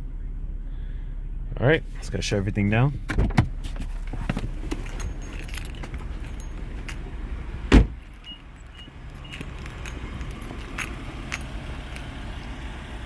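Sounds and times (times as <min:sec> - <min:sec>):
car engine hum: 0:00.0 - 0:13.0
keys jangling: 0:04.4 - 0:07.2, 0:08.0 - 0:12.2
loud thump: 0:07.7 - 0:08.0.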